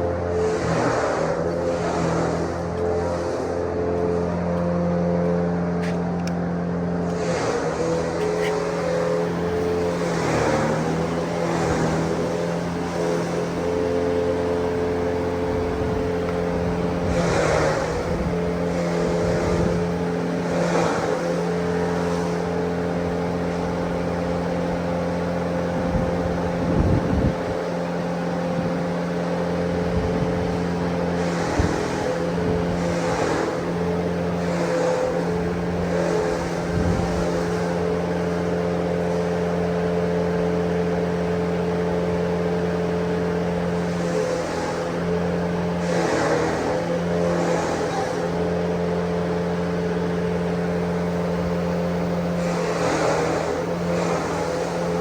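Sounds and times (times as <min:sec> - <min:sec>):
motorized grass chopper running: 0:00.0 - 0:55.0.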